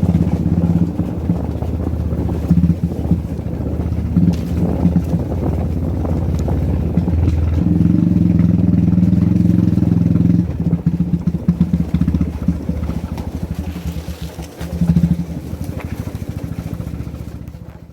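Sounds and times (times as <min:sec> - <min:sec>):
motorcycle engine running: 0:00.0 - 0:17.9.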